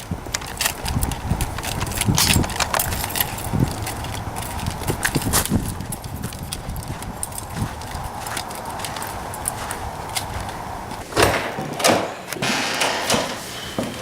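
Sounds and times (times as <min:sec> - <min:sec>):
footsteps on hard floor: 0:01.0 - 0:11.4.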